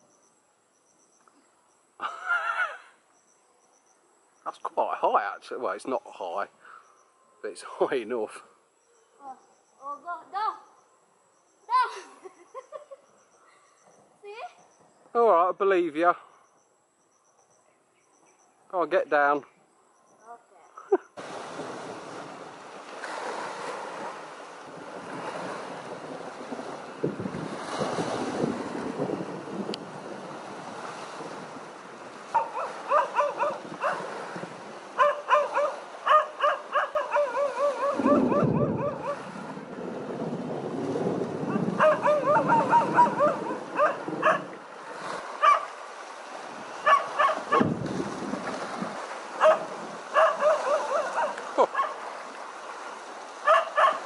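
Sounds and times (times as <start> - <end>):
surf washing: 21.2 - 54.0
dog barking: 32.3 - 34.1, 35.0 - 39.3, 41.5 - 44.6, 45.4 - 45.7, 46.8 - 47.7, 49.4 - 52.0, 53.4 - 54.0.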